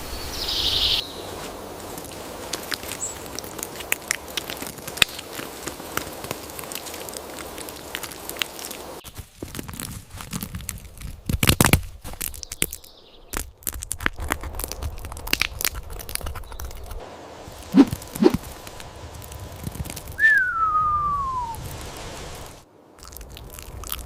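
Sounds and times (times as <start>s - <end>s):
background hiss: 0.0s - 9.0s, 17.0s - 24.0s
squirrel cracking nut shell: 2.4s - 8.8s, 9.5s - 17.0s, 23.0s - 24.0s.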